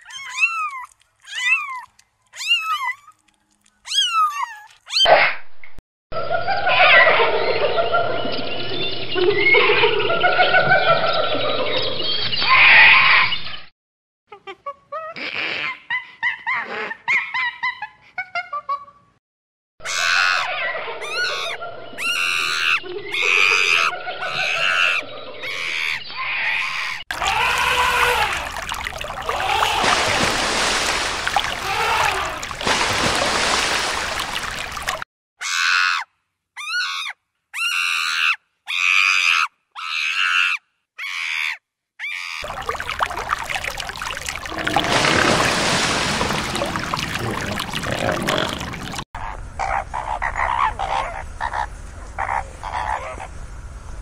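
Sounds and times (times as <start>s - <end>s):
monkeys squealing and screaming: 19.9s - 28.5s, 29.2s - 33.9s, 36.6s - 42.5s.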